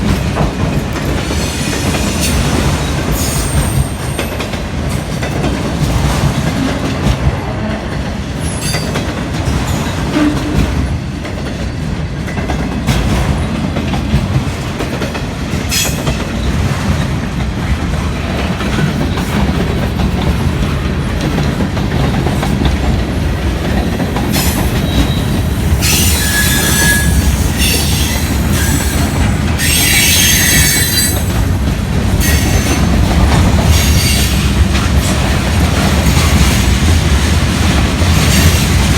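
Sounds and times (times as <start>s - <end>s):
freight train rumbling: 0.0s - 38.9s
high-pitched wheel squeal: 24.4s - 31.3s.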